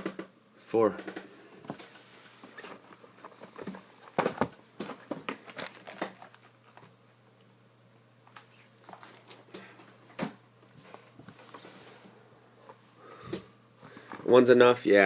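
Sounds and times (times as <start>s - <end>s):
plastic wrap crinkling and tearing: 5.4s - 6.8s.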